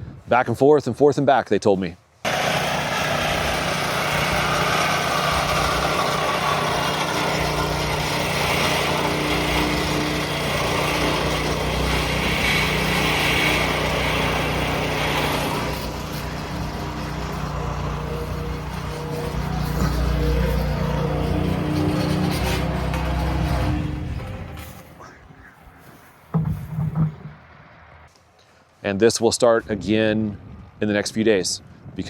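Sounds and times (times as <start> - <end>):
engine running steadily: 2.3 - 25.1.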